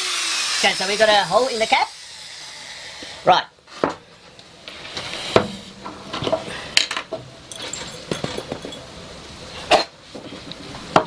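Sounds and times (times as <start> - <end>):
glass jar clinks and knocks: 6.3 - 8.9.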